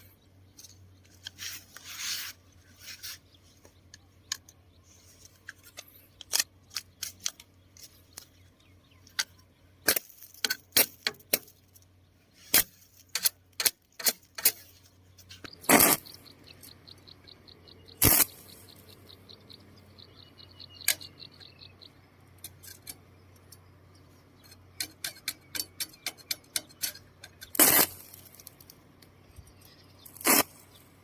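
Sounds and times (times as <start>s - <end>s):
electric sparks crackling: 15.6s - 16.2s, 18.0s - 18.7s, 27.6s - 28.7s, 30.1s - 30.6s.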